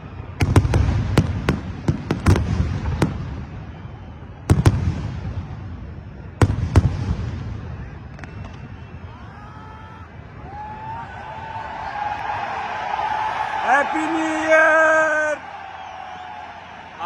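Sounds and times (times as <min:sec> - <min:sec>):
fireworks bursting: 0:00.1 - 0:09.2.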